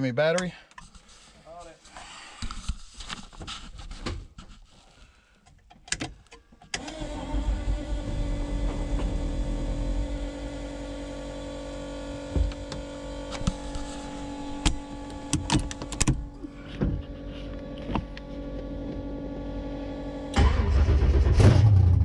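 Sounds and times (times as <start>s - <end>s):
small electric motor whining: 6.8s - 20.3s
low rumble: 7.4s - 11.0s
sharp clicks and knocks: 14.6s - 16.2s.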